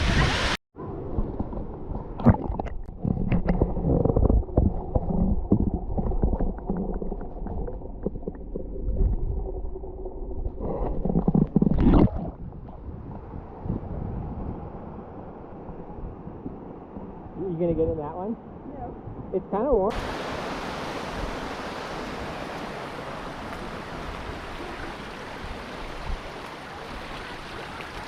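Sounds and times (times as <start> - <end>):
water gurgling and bubbling underwater: 0.2 - 14.2
rushing splash: 19.9 - 28.0.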